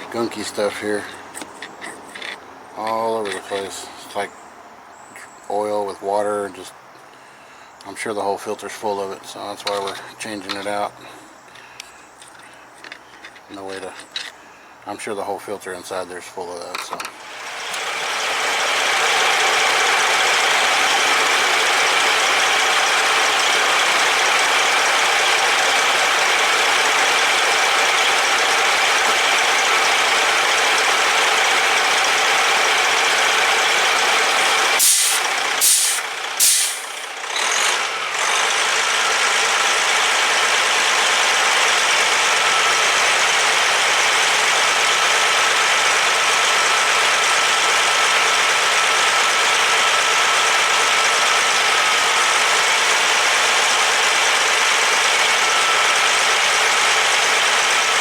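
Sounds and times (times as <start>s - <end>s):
compressed air hissing: 34.5s - 37.1s
sharp air blasts: 34.7s - 37.1s.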